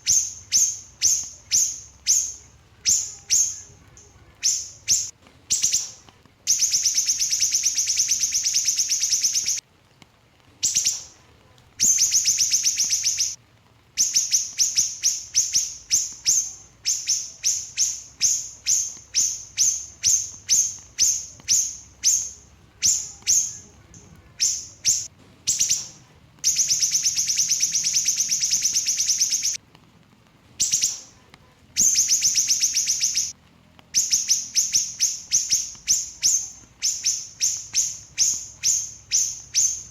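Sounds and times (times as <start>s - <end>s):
bird singing high fast trills: 0.0s - 3.8s, 4.4s - 5.9s, 6.5s - 9.6s, 11.8s - 13.4s, 14.0s - 23.6s, 26.5s - 29.6s, 31.8s - 33.3s, 34.0s - 39.9s.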